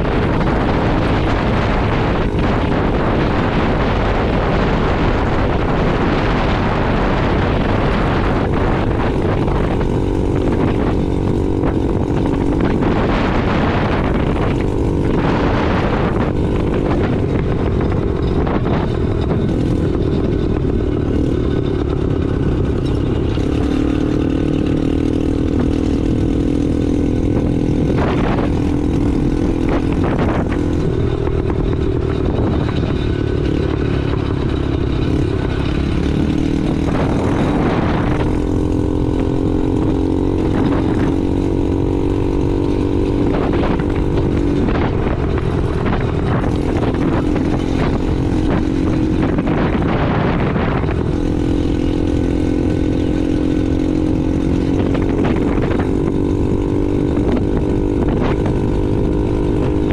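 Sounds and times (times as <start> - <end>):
road noise: 0.0 - 59.9
small motorbike engine running: 0.0 - 59.9
wind noise: 0.0 - 59.9.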